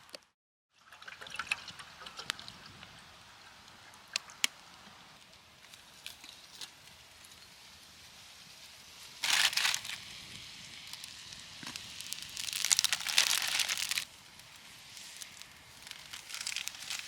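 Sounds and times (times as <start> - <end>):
crinkling and rustling: 9.2 - 10.1, 10.8 - 17.0.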